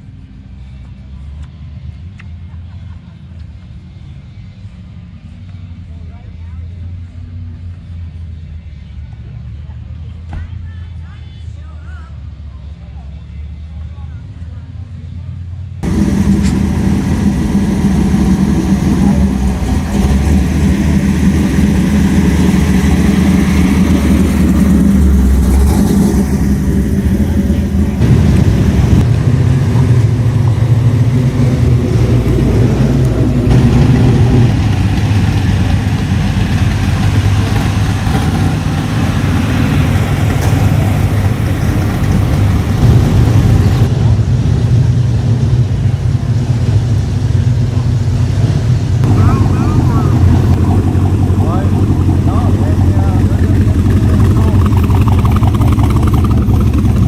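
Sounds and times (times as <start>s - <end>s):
car engine running loudly: 15.5s - 57.0s.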